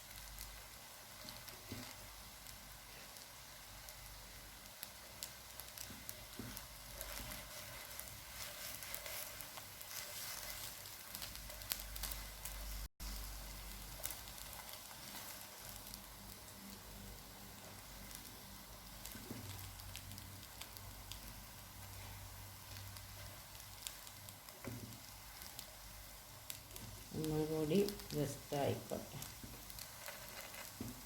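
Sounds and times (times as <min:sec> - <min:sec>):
food sizzling and crackling in a pan: 0:00.0 - 0:31.0.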